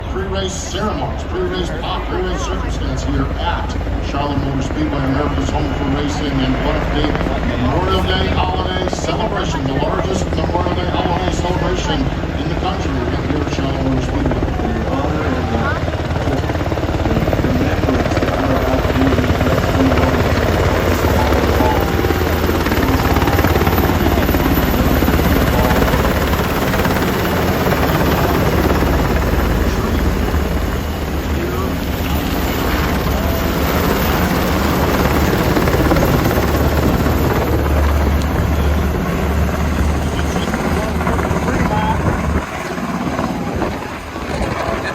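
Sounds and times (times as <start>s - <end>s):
helicopter rotor blades chopping: 0.0s - 44.9s.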